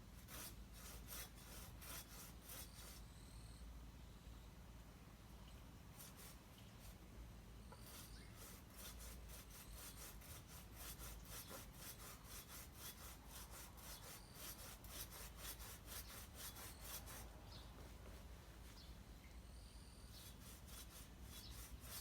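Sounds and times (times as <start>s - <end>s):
hand saw cutting wood: 0.1s - 3.0s, 7.8s - 17.3s, 20.2s - 22.0s.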